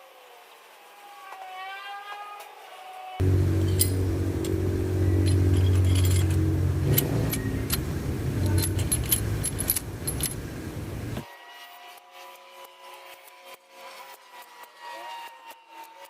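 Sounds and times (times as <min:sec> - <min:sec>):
low hum: 0:03.2 - 0:11.2
metal tools clinking: 0:03.2 - 0:11.2.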